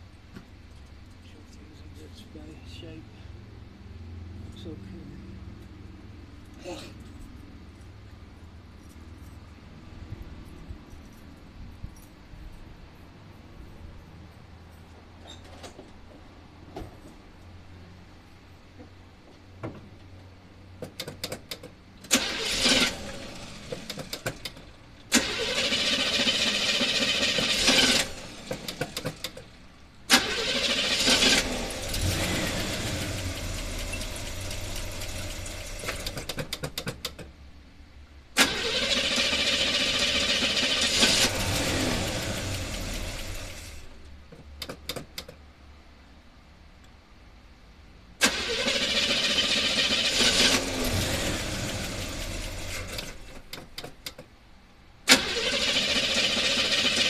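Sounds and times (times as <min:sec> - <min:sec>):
engine starting and sputtering: 0:20.9 - 0:37.3, 0:38.4 - 0:44.0, 0:48.2 - 0:54.3, 0:55.0 - 0:57.0.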